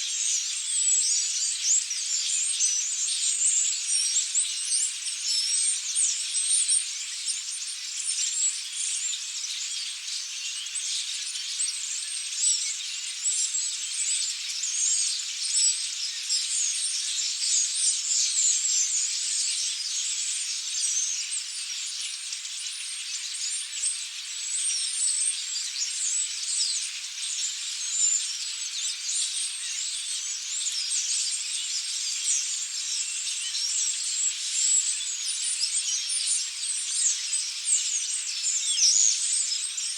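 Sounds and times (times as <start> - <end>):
starlings chattering and whistling: 22.1 - 39.9.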